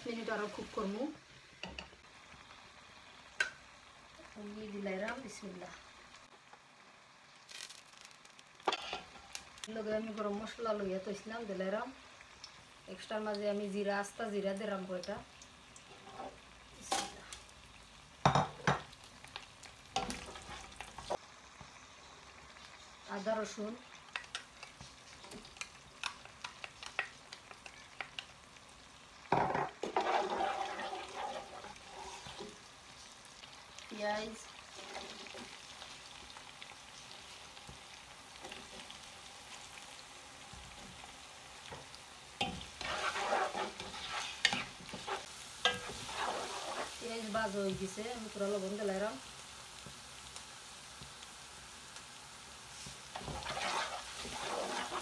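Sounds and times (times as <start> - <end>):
spices sizzling in oil: 0.0 - 55.0
spoon clanking and scraping pot: 8.7 - 9.2, 29.3 - 32.6, 42.4 - 47.0, 53.2 - 55.0.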